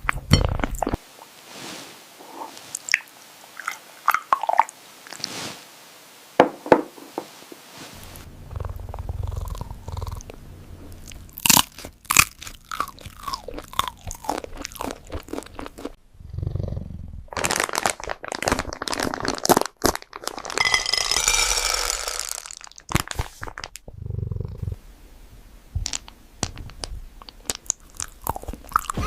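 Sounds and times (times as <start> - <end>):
cat crunching food: 8.6 - 10.3, 11.1 - 16.0, 27.3 - 29.0.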